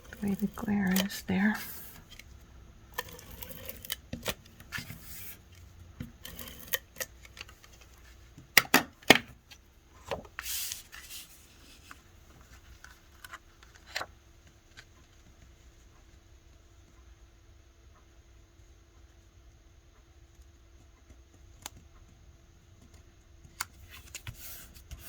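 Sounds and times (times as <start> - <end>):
paper rustling: 10.0 - 14.1.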